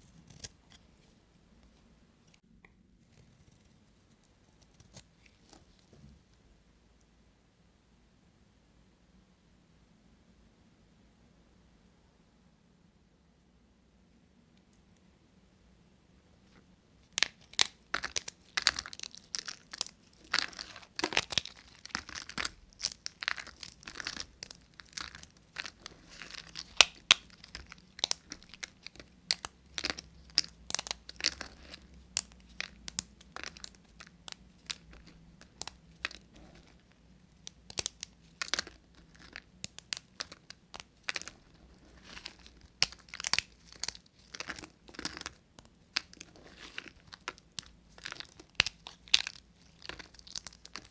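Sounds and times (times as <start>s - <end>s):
knife cutting bar soap: 0.0s - 1.1s.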